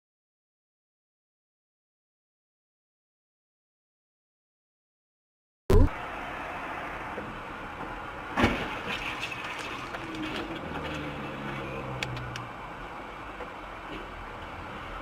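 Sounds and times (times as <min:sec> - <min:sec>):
engine and road noise: 0:05.7 - 0:15.0
car crash: 0:08.3 - 0:11.7.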